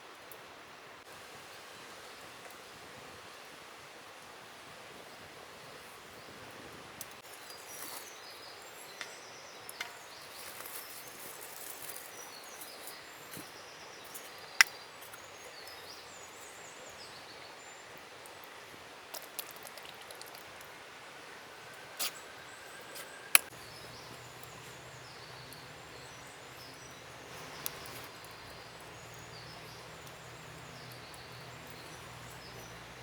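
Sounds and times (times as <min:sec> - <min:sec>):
small birds chirping: 0:05.0 - 0:33.0
flowing river water: 0:14.5 - 0:33.0.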